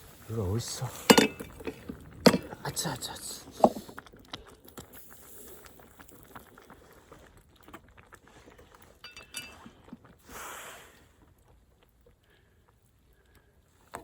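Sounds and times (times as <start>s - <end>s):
camp gear clicks and knocks: 1.1s - 2.6s
ringing metal clink: 9.0s - 9.6s.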